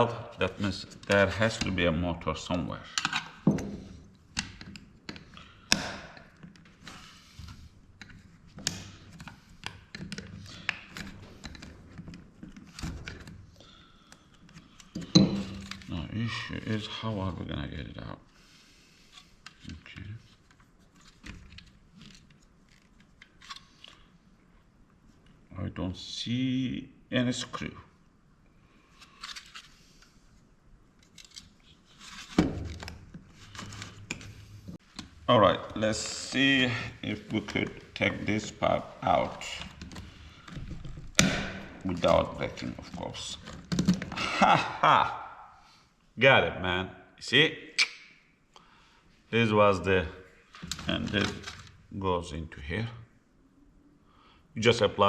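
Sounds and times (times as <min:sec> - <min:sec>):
tools scraping and clicking on plastic: 0:02.9 - 0:15.9.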